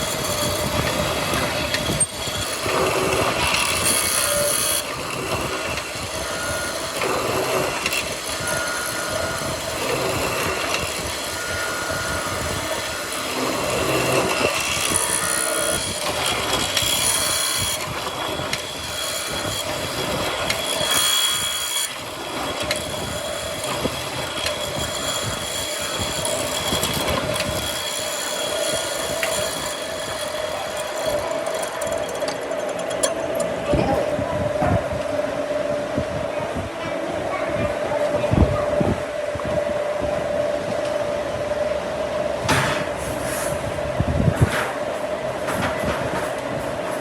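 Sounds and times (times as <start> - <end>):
power tools cutting wood: 0.0 - 34.0.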